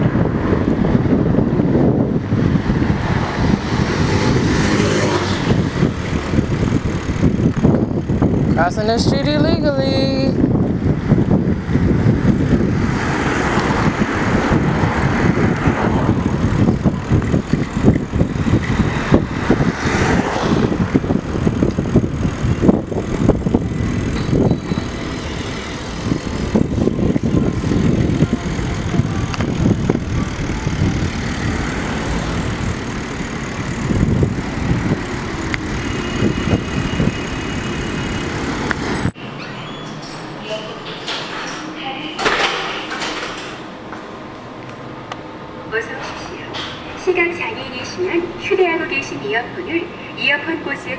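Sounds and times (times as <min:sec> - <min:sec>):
loud microphone rumble: 0:00.0 - 0:39.2
cars passing: 0:00.0 - 0:39.4.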